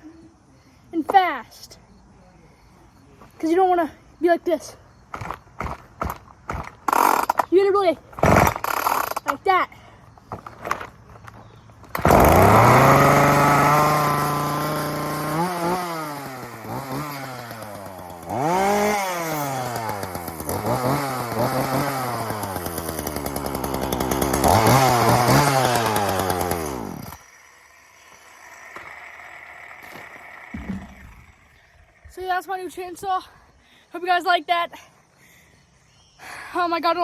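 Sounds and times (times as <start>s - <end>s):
chainsaw engine revving: 5.1s - 9.6s, 10.3s - 32.4s.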